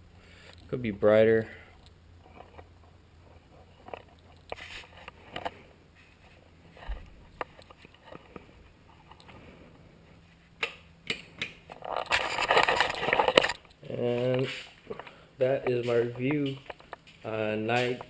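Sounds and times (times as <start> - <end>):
rustling scraping: 3.2 - 10.6, 11.7 - 15.1.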